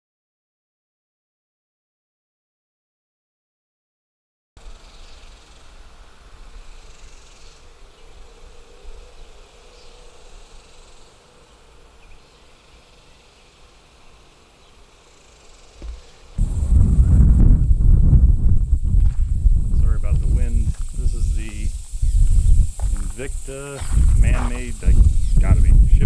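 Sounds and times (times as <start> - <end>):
insect chorus buzzing: 4.6 - 26.0
low rumble: 16.4 - 26.0.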